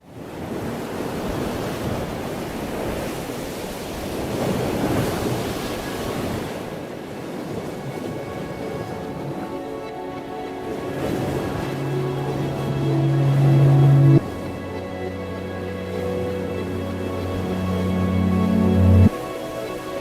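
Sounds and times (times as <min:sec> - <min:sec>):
faint musical tones: 0:06.9 - 0:20.0
reversed noise wash: 0:07.7 - 0:20.0.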